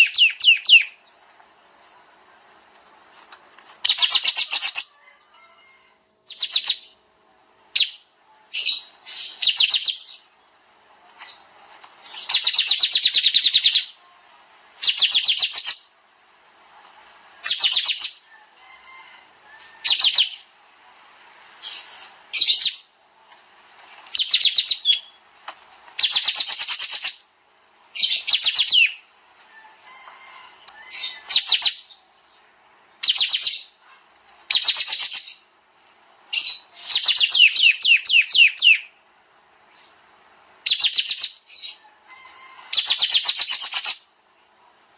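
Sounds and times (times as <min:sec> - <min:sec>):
bird singing fast trills: 0:00.0 - 0:02.1, 0:03.8 - 0:07.0, 0:07.7 - 0:10.3, 0:12.0 - 0:14.0, 0:14.8 - 0:15.9, 0:17.4 - 0:18.3, 0:19.8 - 0:20.5, 0:21.6 - 0:22.9, 0:24.2 - 0:25.2, 0:26.0 - 0:29.1, 0:30.9 - 0:32.1, 0:33.0 - 0:33.8, 0:34.5 - 0:35.5, 0:36.4 - 0:39.0, 0:40.6 - 0:41.8, 0:42.7 - 0:44.2.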